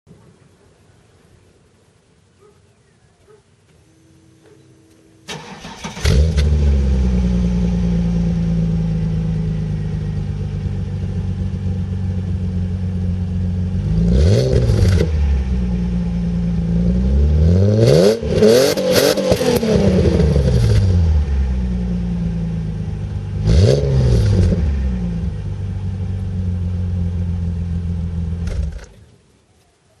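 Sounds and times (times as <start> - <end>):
car engine cranking: 5.2 - 8.4
car engine idling: 5.2 - 17.4, 19.2 - 29.2
car engine revving: 5.3 - 29.0.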